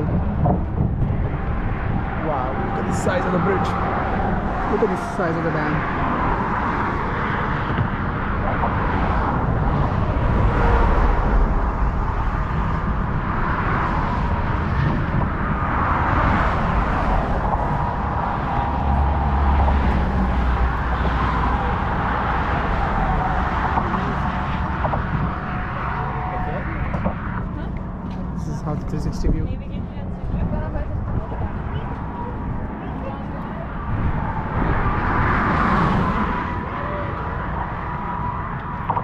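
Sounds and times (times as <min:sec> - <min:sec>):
low rumbles: 0:00.0 - 0:39.0
traffic on a bridge: 0:00.0 - 0:39.0.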